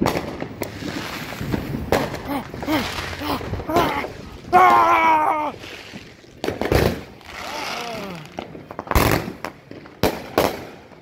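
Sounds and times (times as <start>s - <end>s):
firework bangs: 0.0s - 11.0s
hissing crackle of fireworks: 0.0s - 11.0s.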